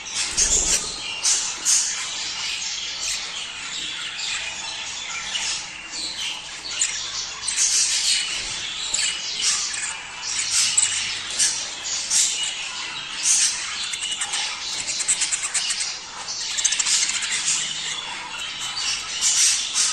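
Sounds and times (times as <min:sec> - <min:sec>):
budgerigars warbling and chirping: 0:00.0 - 0:19.9.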